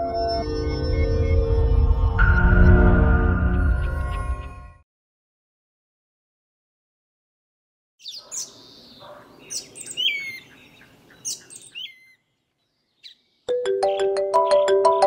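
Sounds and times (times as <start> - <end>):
low outdoor background noise: 8.0 - 13.0
birds chirping: 8.0 - 15.0.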